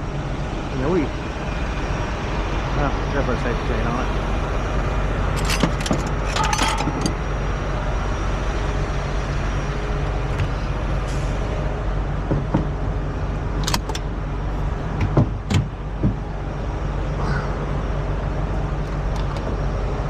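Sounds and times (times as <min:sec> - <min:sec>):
diesel truck engine idling: 0:00.0 - 0:20.0
metallic clanks and knocks: 0:05.3 - 0:07.2.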